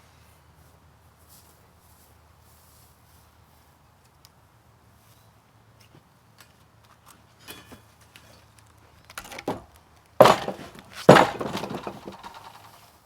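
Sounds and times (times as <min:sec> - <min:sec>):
loud knocks or clanks: 0:10.2 - 0:12.6.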